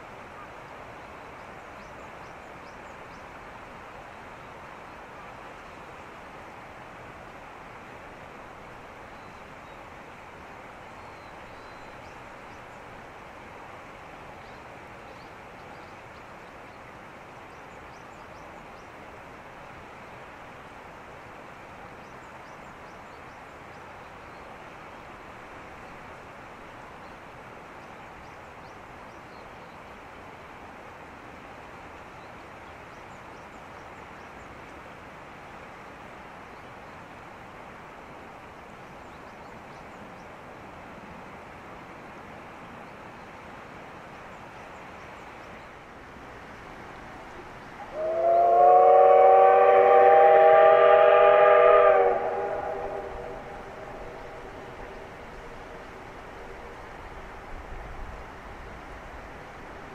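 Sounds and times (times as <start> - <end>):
outdoor background rush: 0.0 - 59.9
faint bird chirps: 11.0 - 12.7.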